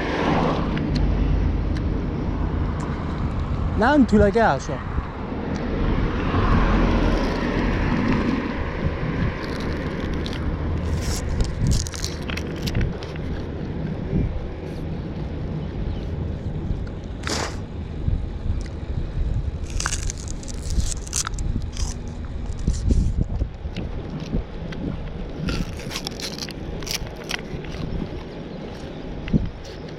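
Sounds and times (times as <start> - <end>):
wind and road rumble: 0.0 - 29.9
bicycle ticks and crackles: 9.4 - 14.0, 19.6 - 29.9.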